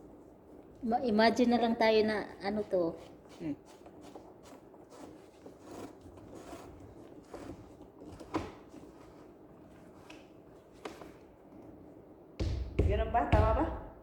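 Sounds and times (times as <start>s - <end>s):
rubbing and scraping handling: 2.1s - 11.4s.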